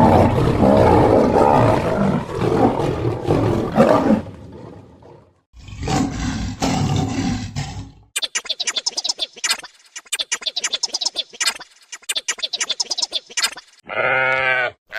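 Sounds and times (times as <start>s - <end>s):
big cat roaring: 0.0s - 8.0s.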